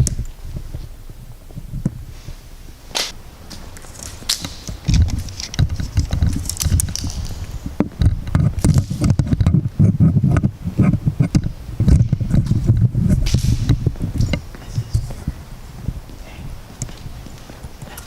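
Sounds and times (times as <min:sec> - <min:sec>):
footsteps crunching on debris: 0:00.0 - 0:09.1
sharp crack: 0:02.9 - 0:09.6, 0:13.2 - 0:13.9.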